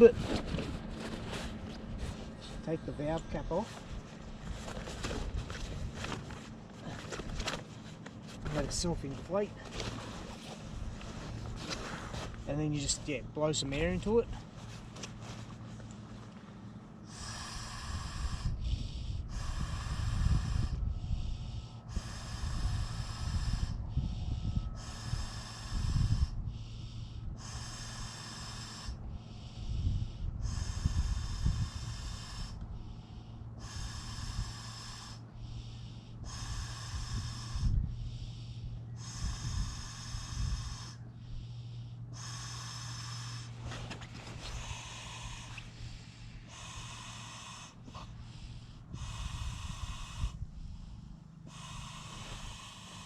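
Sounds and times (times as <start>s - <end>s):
person blowing into mattress valve: 17.1s - 20.8s, 21.9s - 23.8s, 24.8s - 26.4s, 29.8s - 32.6s, 33.6s - 35.2s, 36.2s - 37.9s, 39.0s - 41.0s, 42.1s - 50.7s, 51.5s - 53.0s
person breathing in: 17.1s - 53.0s.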